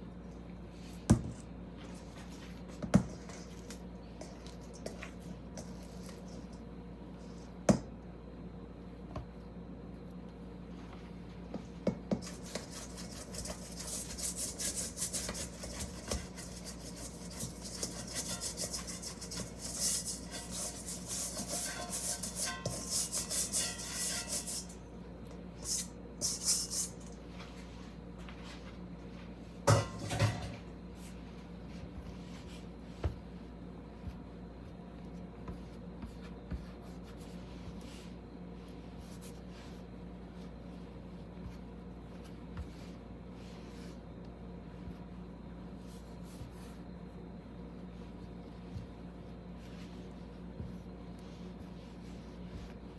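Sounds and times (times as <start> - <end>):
scraping and rubbing: 12.2 - 24.8.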